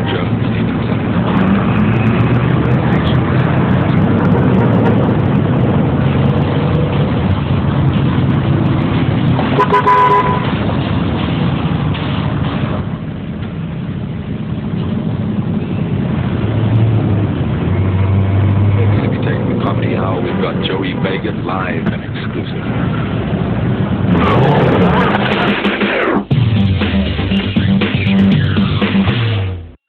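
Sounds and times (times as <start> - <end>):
car engine running: 0.0 - 29.8
road rumble: 0.0 - 29.8
car horn toot: 9.5 - 10.6.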